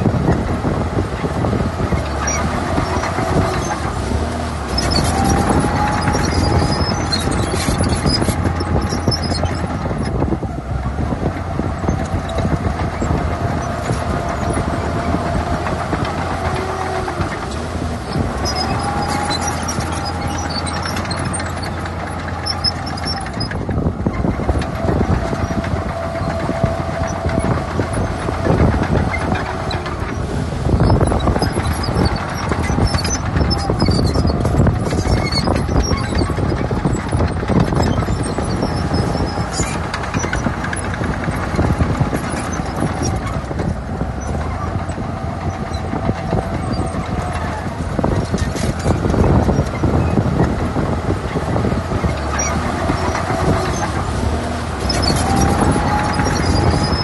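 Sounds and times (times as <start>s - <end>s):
diesel engine running: 0.0s - 57.0s
metallic clatter of steel tracks: 11.8s - 57.0s.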